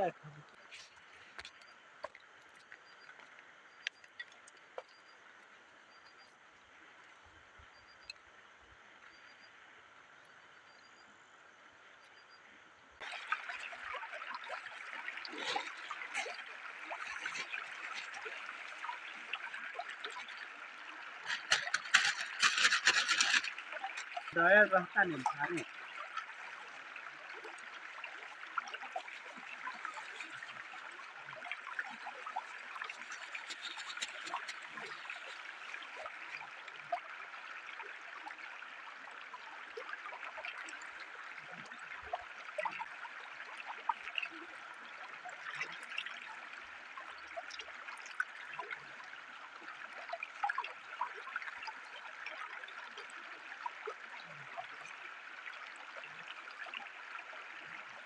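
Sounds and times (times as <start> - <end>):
river trickling: 0.0 - 58.0
small water splashes: 13.0 - 58.0.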